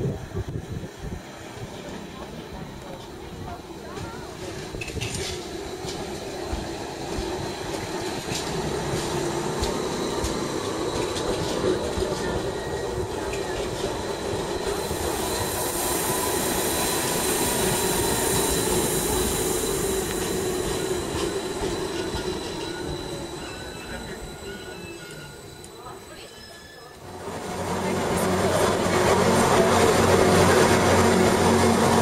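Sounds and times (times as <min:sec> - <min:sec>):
electric train humming: 0:00.0 - 0:32.0
train clicks: 0:03.9 - 0:14.8
wheels squealing: 0:16.1 - 0:27.1.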